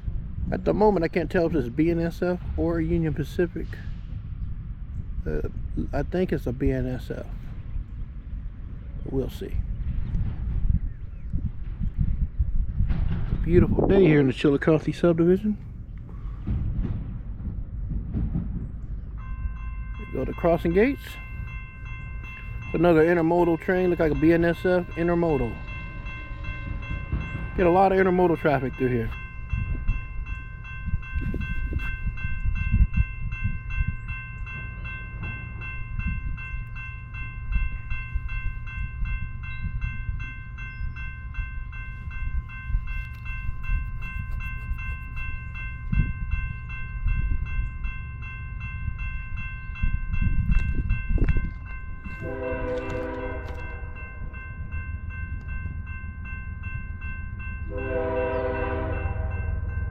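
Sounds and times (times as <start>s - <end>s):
crossing warning bell ringing: 0.0s - 4.2s, 4.8s - 9.9s, 12.5s - 59.9s
low rumble: 7.4s - 14.3s
train horn blasts: 52.2s - 54.0s, 57.7s - 59.7s.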